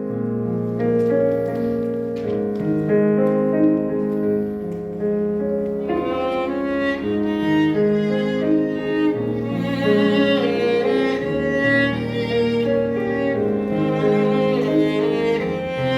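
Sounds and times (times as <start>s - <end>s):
piano holding long notes: 0.0s - 15.9s
bowed strings: 5.8s - 15.9s.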